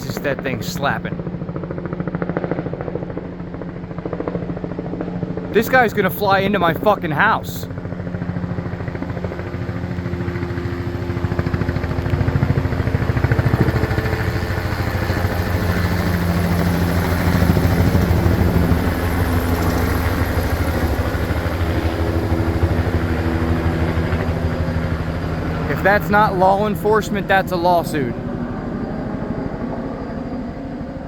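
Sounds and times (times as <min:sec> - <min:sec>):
helicopter engine drone: 0:00.0 - 0:31.0
helicopter rotor blades slapping: 0:00.0 - 0:31.0.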